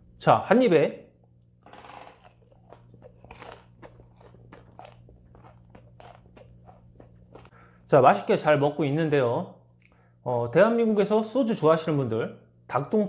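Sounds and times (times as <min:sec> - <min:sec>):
crunchy chewing: 0:02.0 - 0:07.6.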